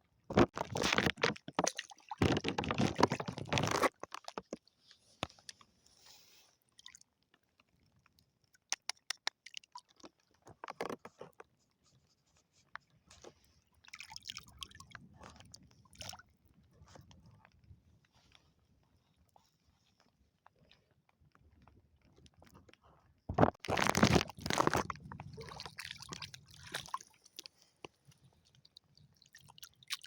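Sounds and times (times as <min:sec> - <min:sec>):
shells and coral rubble crunching: 0:00.3 - 0:04.6, 0:23.3 - 0:25.1.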